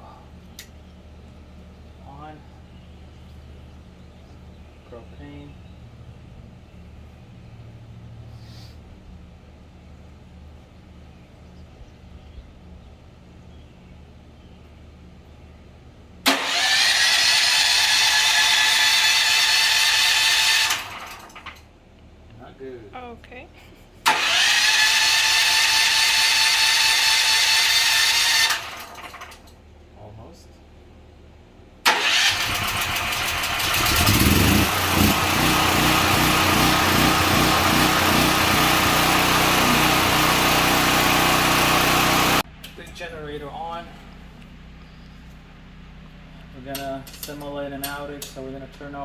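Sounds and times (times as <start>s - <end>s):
generator starter cranking engine: 16.2s - 21.7s, 24.0s - 29.6s, 31.8s - 45.4s.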